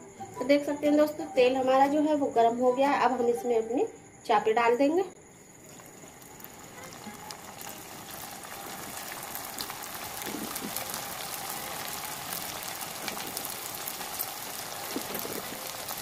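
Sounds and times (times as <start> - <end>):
food deep-frying in oil: 5.2 - 16.0.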